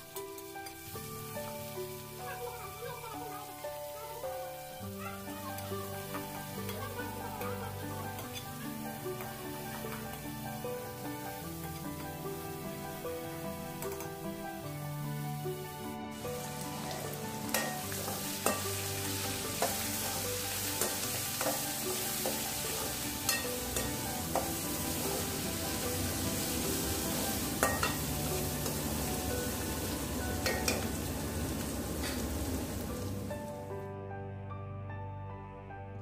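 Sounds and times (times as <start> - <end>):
onions sizzling in a pan: 0.0 - 33.8
spoon scraping a pan: 6.6 - 8.7, 16.9 - 25.2, 27.6 - 28.0.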